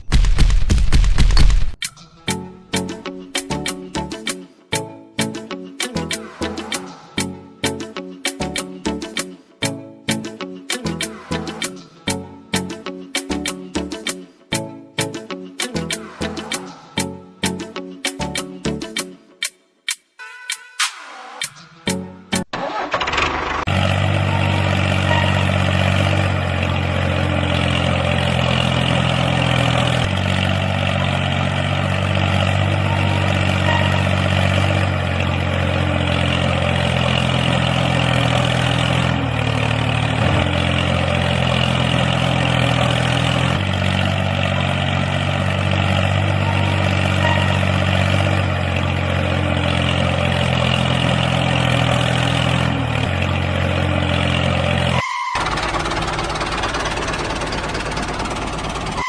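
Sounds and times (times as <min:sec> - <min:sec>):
small engine idling: 0:22.6 - 0:59.0.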